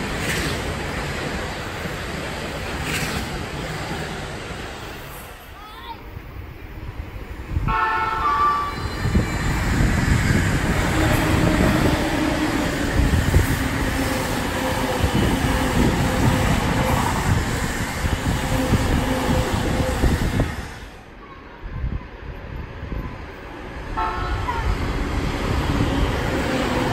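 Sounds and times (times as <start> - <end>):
wheels rumbling on rails: 0.0 - 26.9
train horn blast: 7.6 - 9.1, 24.0 - 24.7.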